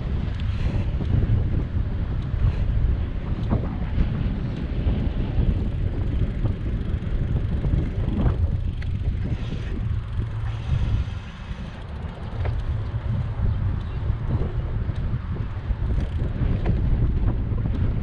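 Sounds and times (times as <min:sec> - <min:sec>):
faint ticks from bicycle: 0:00.0 - 0:18.0
wind rumbling on microphone: 0:00.0 - 0:18.0.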